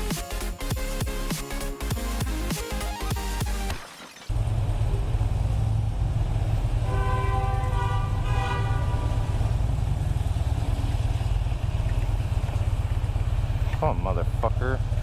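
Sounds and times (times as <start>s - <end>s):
motorcycle engine rumbling: 4.3s - 15.0s
vehicle horn: 6.8s - 9.6s.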